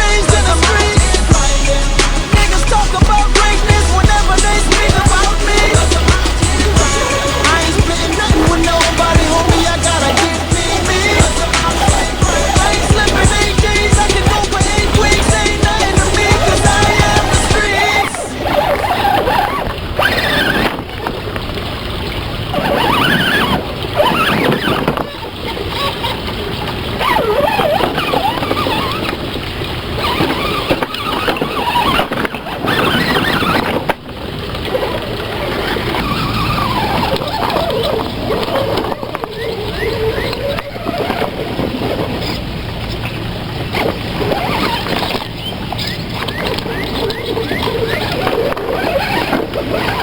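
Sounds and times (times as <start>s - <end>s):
steady rushing noise: 0.0s - 27.0s.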